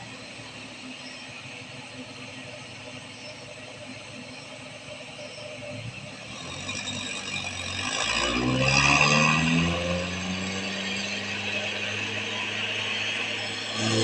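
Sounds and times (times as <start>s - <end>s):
mechanical grinding whine: 0.0s - 14.0s
truck diesel engine revving: 5.9s - 14.0s.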